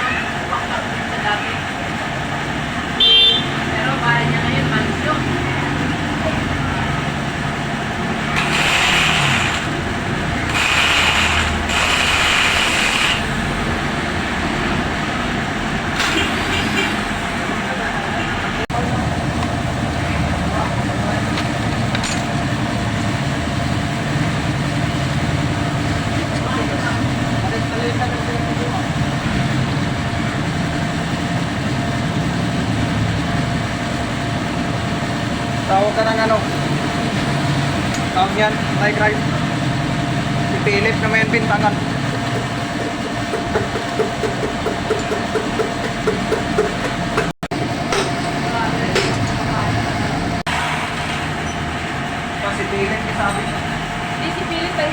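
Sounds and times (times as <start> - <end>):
low mechanical rumble: 5.5 - 54.9
ratchet wrench cranking: 8.3 - 13.7, 42.1 - 46.8.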